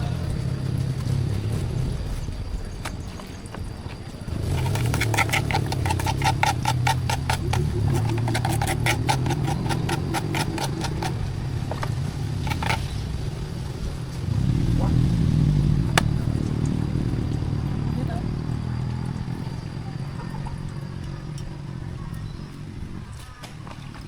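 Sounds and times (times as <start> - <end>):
rapid regular ticking: 4.5 - 11.4.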